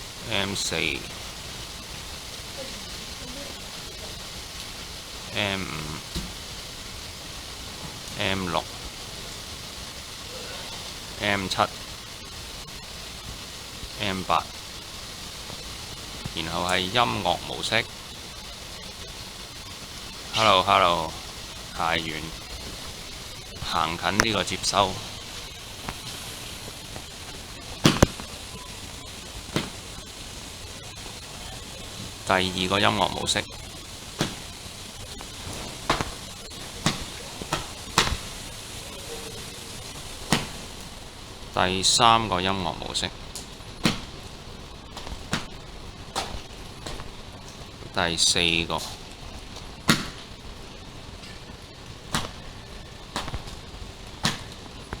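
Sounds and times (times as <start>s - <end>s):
sharp knocks: 43.8s - 44.2s.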